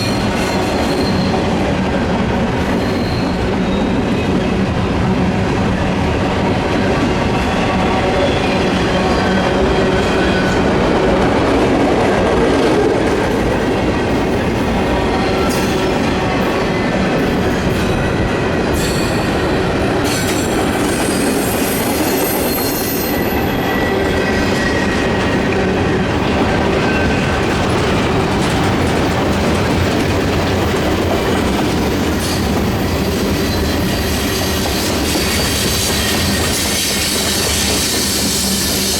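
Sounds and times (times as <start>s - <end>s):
high wheel squeal: 0.0s - 1.4s, 2.7s - 4.5s, 20.0s - 25.4s, 32.2s - 38.9s
train wheels clacking on rails: 0.0s - 38.9s.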